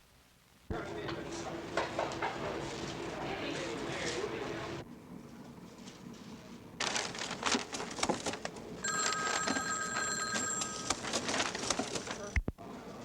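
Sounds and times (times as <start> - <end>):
bell ringing: 8.8 - 11.0.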